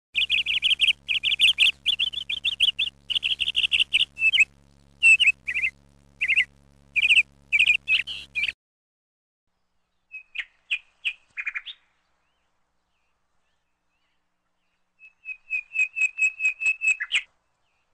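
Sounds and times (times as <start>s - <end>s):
songbird chirping in trills: 0.2s - 8.6s.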